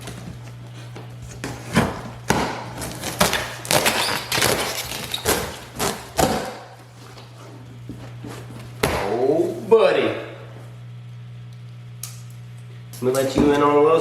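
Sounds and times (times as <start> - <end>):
low electrical hum: 0.0 - 14.0
cardboard box rustling and scraping: 6.8 - 8.8.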